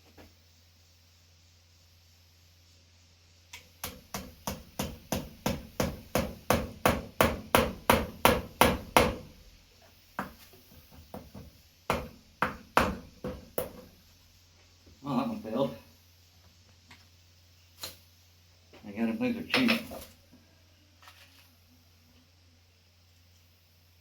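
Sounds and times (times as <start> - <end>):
hammer striking a nail: 3.8 - 9.3, 10.2 - 13.9.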